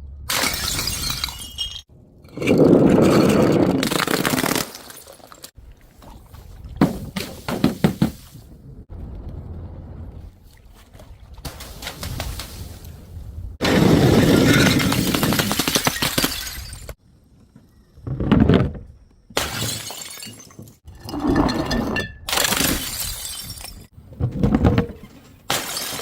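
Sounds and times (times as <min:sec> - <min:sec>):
glass bottles smashing: 0:00.3 - 0:01.9, 0:02.9 - 0:05.6, 0:13.6 - 0:17.0, 0:19.4 - 0:20.8, 0:21.4 - 0:23.9, 0:25.5 - 0:26.0.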